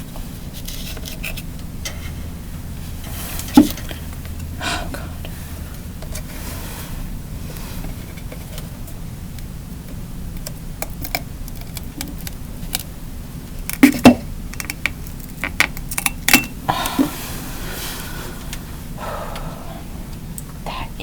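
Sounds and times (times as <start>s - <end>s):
clicks and knocks of small objects: 10.4s - 12.9s, 13.6s - 16.5s.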